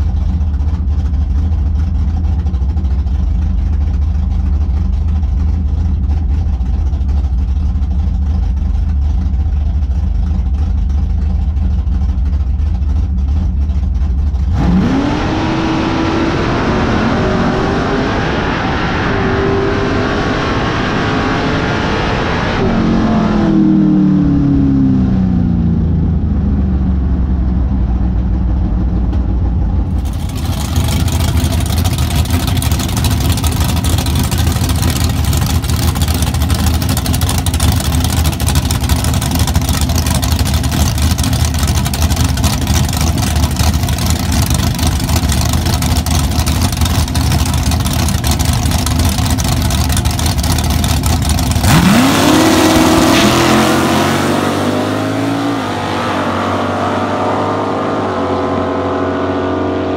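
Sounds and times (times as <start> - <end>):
car engine slowing down: 0.0 - 59.9
race cars idling loud and low: 0.0 - 59.9
engine revving sharply: 14.5 - 25.2, 29.9 - 36.6, 51.5 - 59.9.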